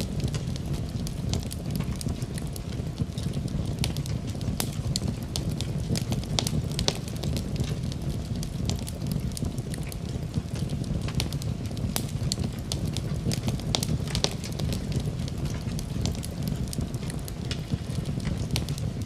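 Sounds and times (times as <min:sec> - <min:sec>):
burning logs crackling and popping: 0:00.0 - 0:19.0
low rumble of flames: 0:00.0 - 0:19.0.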